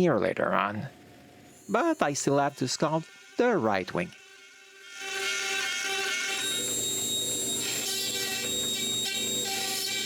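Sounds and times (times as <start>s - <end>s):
router spindle high whine: 1.5s - 10.0s
motor tones shifting pitch: 5.9s - 10.0s.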